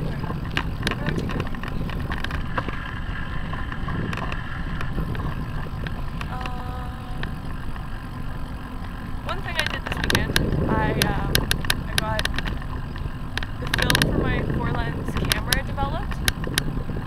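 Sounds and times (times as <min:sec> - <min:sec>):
road rumble: 0:00.0 - 0:17.0
wind buffeting: 0:00.0 - 0:17.0
camera mount clicks and rattles: 0:09.6 - 0:14.3.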